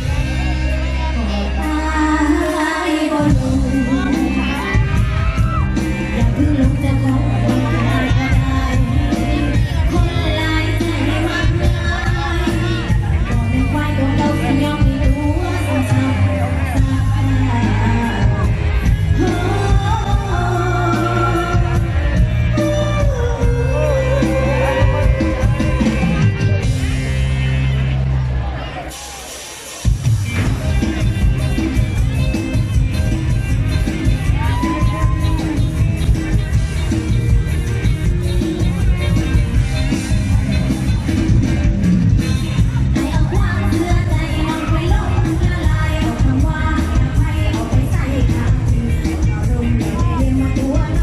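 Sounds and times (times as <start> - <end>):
held bass notes: 0.0 - 29.1, 29.8 - 51.0
live band music: 0.0 - 51.0
woman singing: 1.2 - 26.2, 42.9 - 51.0.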